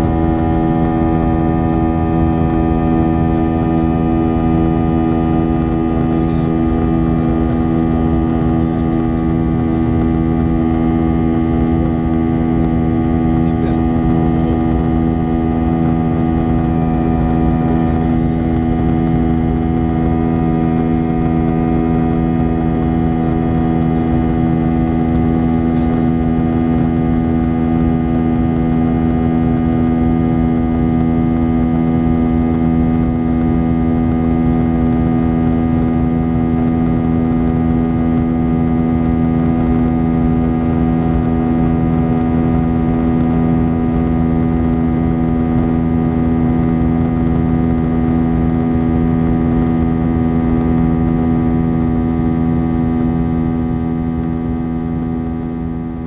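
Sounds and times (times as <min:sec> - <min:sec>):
jet engines humming: 0:00.0 - 0:29.7.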